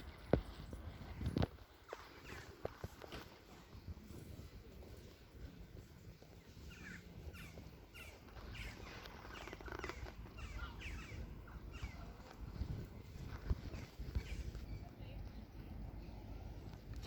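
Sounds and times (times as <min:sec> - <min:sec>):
birds chirping: 0:01.8 - 0:03.9, 0:04.7 - 0:16.3.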